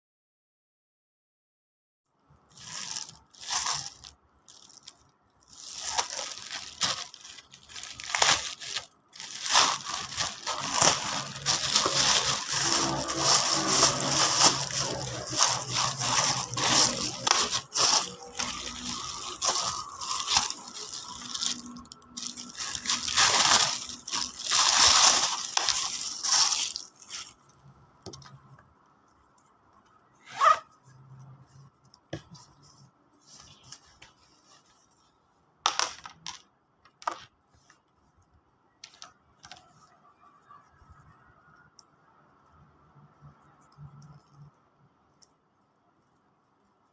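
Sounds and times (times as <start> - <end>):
plastic packaging crinkling and tearing: 2.5 - 27.7.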